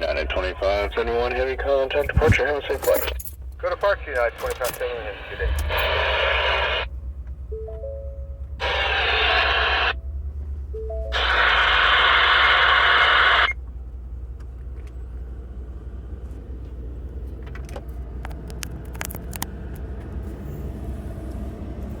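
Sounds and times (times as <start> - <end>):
radio static hiss: 0.0 - 3.0, 3.9 - 6.9, 8.6 - 10.0, 11.2 - 13.6
steady low rumble: 0.0 - 12.0.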